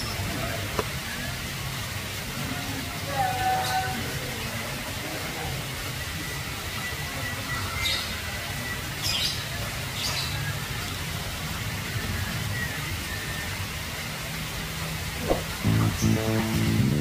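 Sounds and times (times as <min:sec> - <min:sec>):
steady low rumble: 0:15.2 - 0:17.0
music: 0:15.6 - 0:17.0.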